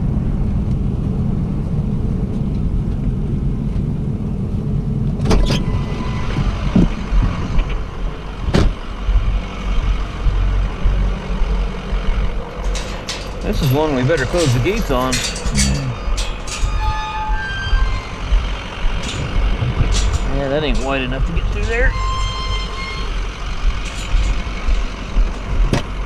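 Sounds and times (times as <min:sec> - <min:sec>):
engine and road drone: 0:00.0 - 0:26.0
sharp knocks: 0:08.5 - 0:09.4.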